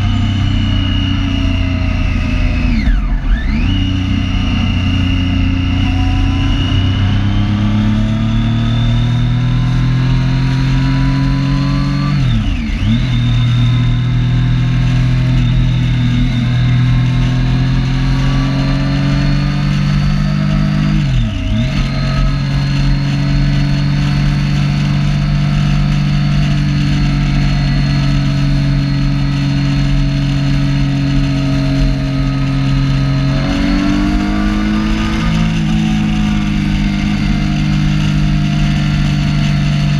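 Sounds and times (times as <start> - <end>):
motorcycle engine pulling: 18.1 - 39.9.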